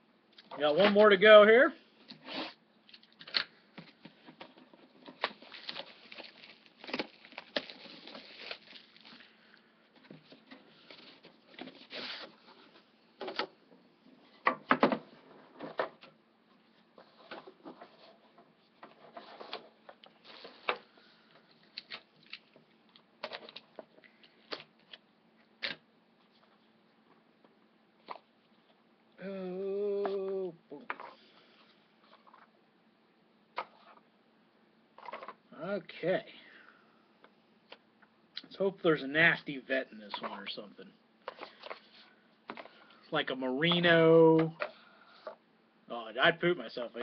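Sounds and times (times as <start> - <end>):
plastic wrap crinkling and tearing: 5.2 - 9.4
cardboard scraping and rustling: 17.0 - 20.9.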